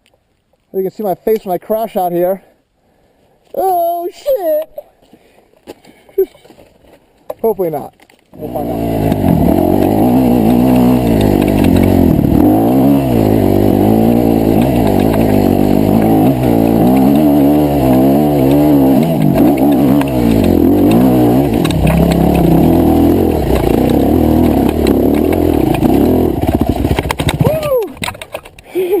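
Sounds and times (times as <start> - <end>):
dirt bike engine revving: 8.4 - 28.0.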